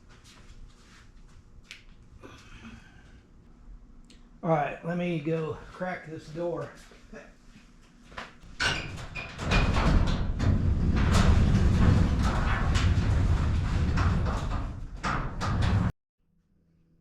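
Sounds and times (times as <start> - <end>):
rolling door rattling rumble: 8.5 - 15.9.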